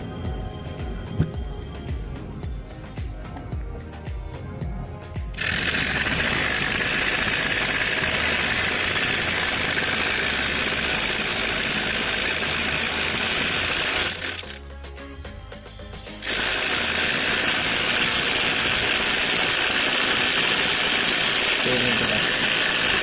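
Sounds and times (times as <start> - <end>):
model jet engine rushing: 5.2 - 14.6, 16.2 - 23.0.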